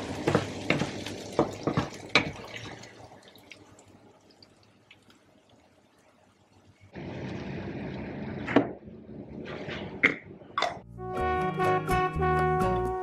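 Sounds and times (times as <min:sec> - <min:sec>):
paste frying in oil: 0:00.0 - 0:05.6.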